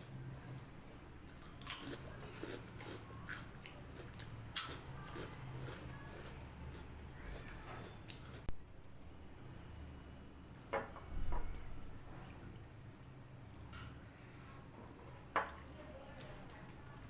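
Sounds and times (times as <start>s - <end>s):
person eating wet food: 0.4s - 8.5s.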